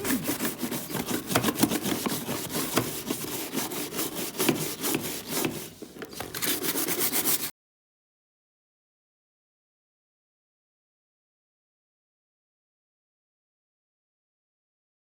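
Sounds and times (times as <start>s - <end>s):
wet brush scrubbing: 0.0s - 7.5s.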